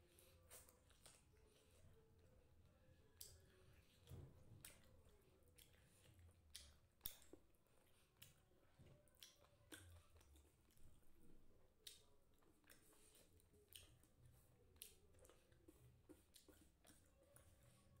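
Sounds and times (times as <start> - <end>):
faint chewing: 0.0 - 18.0
sharp mouth clicks and smacks: 0.5 - 1.4, 3.1 - 17.8.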